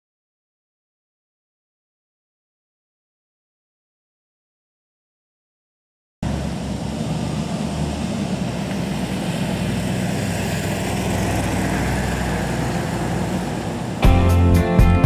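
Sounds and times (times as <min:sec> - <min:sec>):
car engine low rumble: 0:06.2 - 0:14.6.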